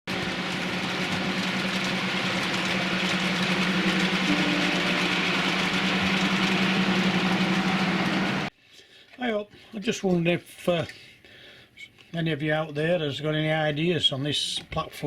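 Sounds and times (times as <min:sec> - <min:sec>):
model locomotive humming: 0:00.1 - 0:08.5.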